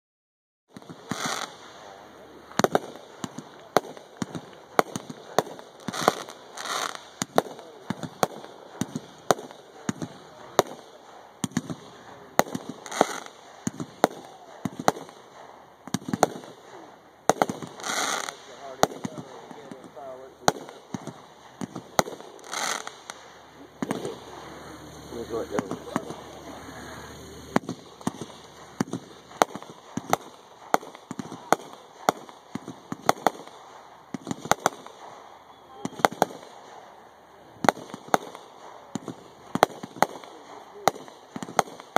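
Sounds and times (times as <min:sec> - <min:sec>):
firework shells bursting: 0:00.7 - 0:41.9.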